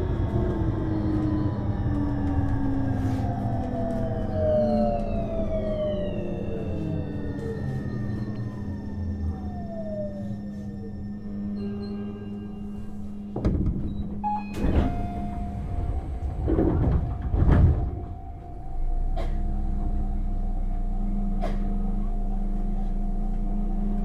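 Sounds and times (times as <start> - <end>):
low rumble: 0.0 - 24.0
train electrical hum: 0.0 - 24.0
sliding doors knocking and clattering: 13.3 - 18.6.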